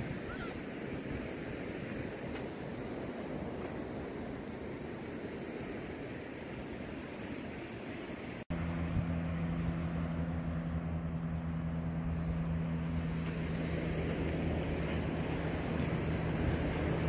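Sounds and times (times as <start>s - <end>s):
engine humming: 8.4s - 17.0s.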